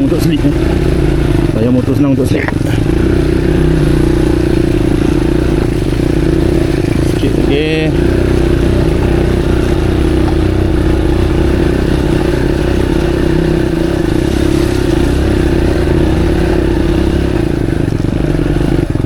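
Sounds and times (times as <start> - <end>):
motorcycle engine running steadily: 0.0 - 19.0.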